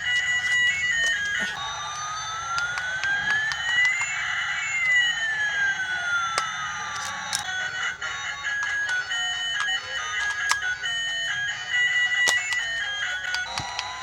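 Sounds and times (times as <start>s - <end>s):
light clicks: 2.4s - 14.0s.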